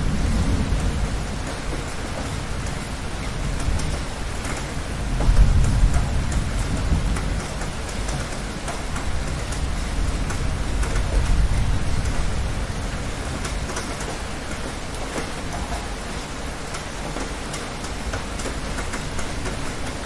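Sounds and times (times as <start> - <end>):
thunder rumble: 0.0 - 8.1
steady rain: 0.0 - 20.0.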